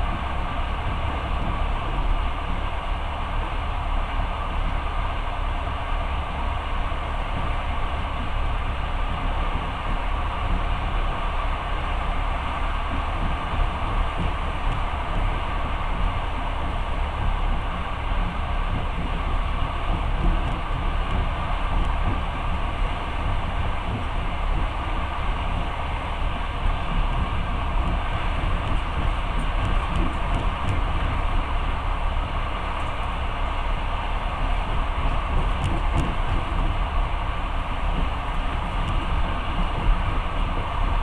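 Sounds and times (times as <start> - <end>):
train rumbling: 0.0 - 41.0.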